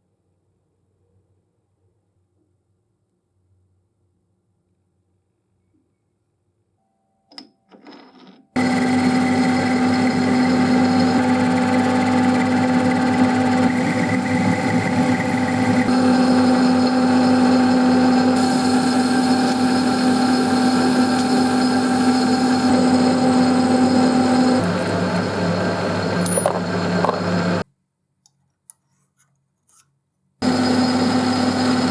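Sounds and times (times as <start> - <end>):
electric machine humming and whining: 8.6 - 27.6, 30.4 - 31.9.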